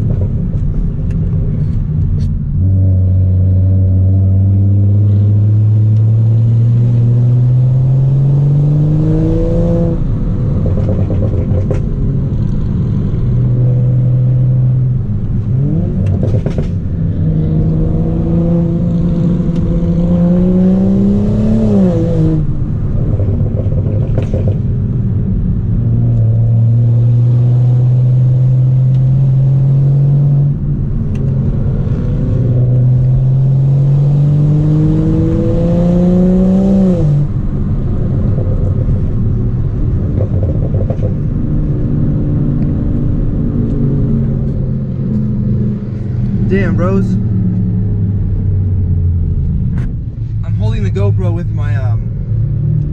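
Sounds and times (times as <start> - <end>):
car engine accelerating hard: 0.0 - 52.9.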